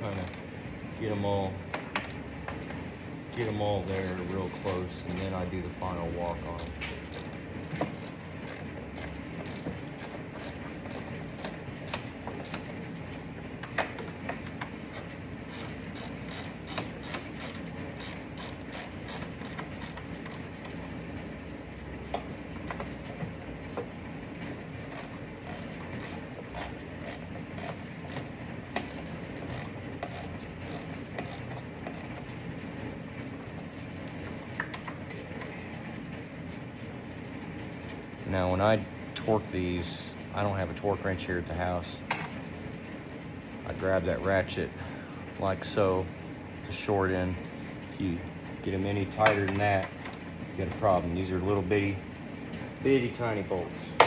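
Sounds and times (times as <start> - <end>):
hand ratchet clicking: 0.1 - 0.4, 3.3 - 5.4, 6.3 - 12.8, 15.4 - 20.8, 24.9 - 32.2.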